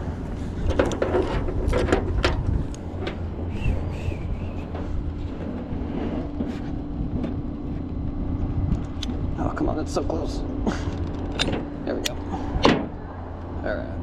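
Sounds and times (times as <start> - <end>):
metallic clanks and rattles: 0.0 - 3.3, 10.7 - 13.0
truck engine running: 0.0 - 14.0.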